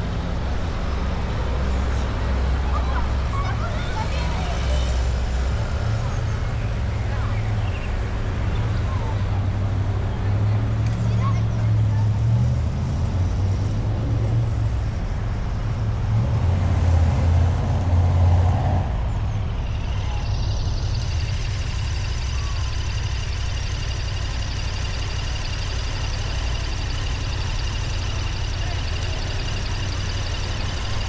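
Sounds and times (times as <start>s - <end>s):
car engine and tyre rumble: 0.0s - 31.0s
steady high-pitched hiss: 19.8s - 31.0s.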